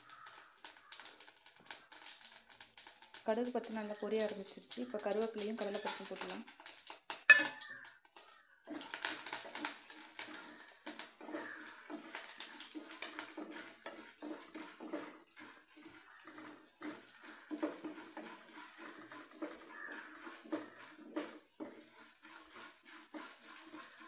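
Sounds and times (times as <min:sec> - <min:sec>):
ingredients sizzling in oil: 0:00.0 - 0:24.0
wooden spatula scraping: 0:07.3 - 0:24.0.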